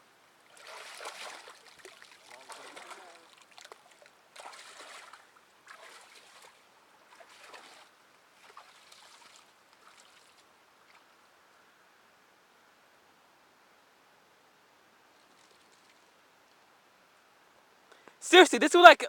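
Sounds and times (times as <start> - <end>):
shallow water sloshing: 0.4 - 11.1.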